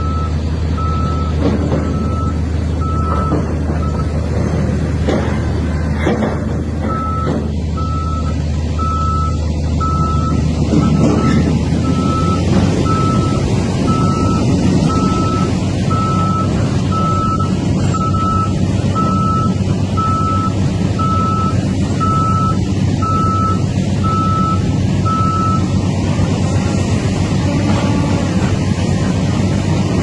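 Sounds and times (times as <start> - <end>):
reversing alarm beeping: 0.0 - 4.2, 6.9 - 25.8
heavy vehicle engine running: 0.0 - 30.0.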